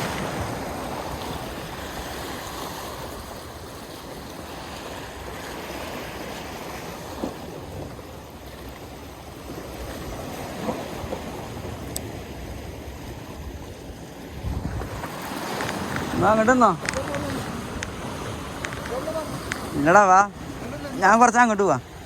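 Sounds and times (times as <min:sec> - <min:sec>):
water lapping: 0:00.0 - 0:22.0
wind buffeting the microphone: 0:09.8 - 0:21.0.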